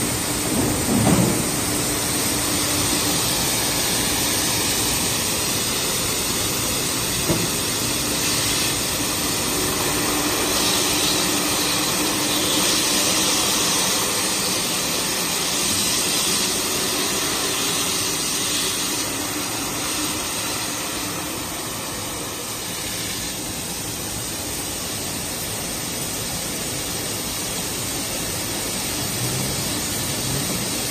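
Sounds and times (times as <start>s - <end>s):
machine knock: 0.5s - 1.6s.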